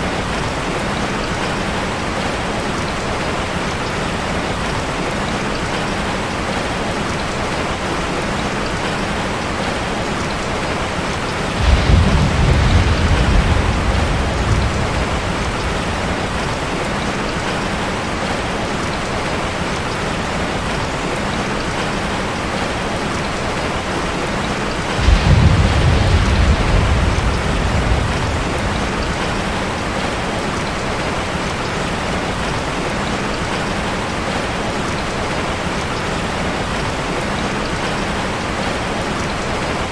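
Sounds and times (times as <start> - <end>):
rain drumming on a metal roof: 0.0 - 39.9
thunder rumbling: 11.0 - 18.4, 24.8 - 32.4.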